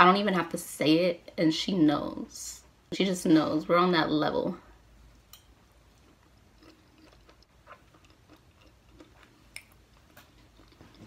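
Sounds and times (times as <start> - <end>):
faint chewing: 5.9 - 11.0.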